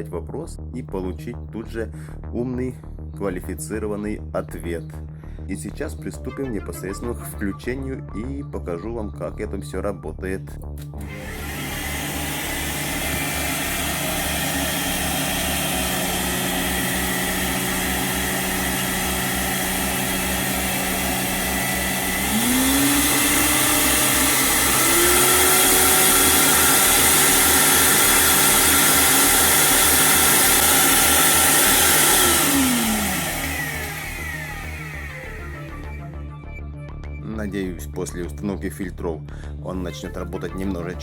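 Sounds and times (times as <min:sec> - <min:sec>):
vacuum cleaner motor humming: 0:11.0 - 0:36.2.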